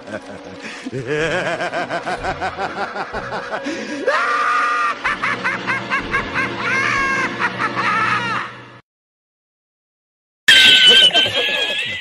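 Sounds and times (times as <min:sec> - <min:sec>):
rhythmic ha-ha-ha laughs: 0:00.0 - 0:08.6, 0:10.6 - 0:12.0
high-pitched laugh and squeal: 0:00.9 - 0:08.6, 0:10.5 - 0:12.0.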